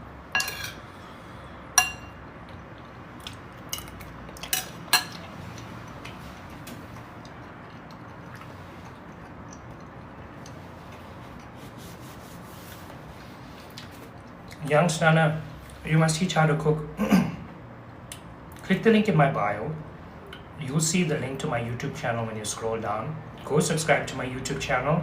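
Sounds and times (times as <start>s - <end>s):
cutlery clinking against dish: 0.4s - 0.8s, 3.7s - 5.3s.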